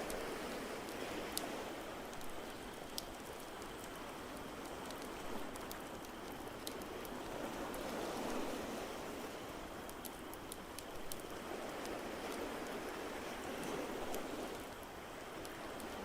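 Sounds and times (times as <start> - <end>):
fireplace crackling and popping: 0.0 - 7.9, 9.8 - 12.8.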